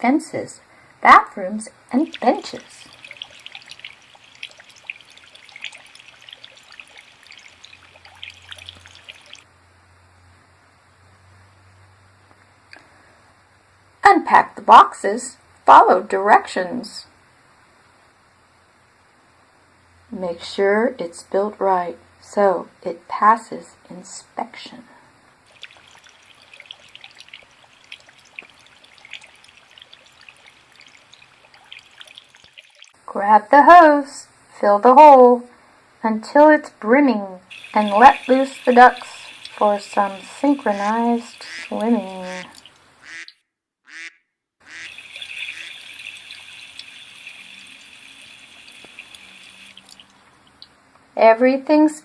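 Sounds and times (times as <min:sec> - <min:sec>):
water trickling and dripping: 0:01.1 - 0:09.5, 0:25.4 - 0:33.1, 0:37.4 - 0:43.2, 0:44.6 - 0:50.8.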